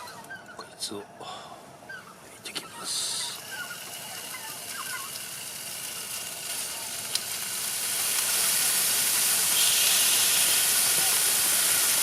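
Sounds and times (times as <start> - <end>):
meat sizzling: 3.0 - 12.0.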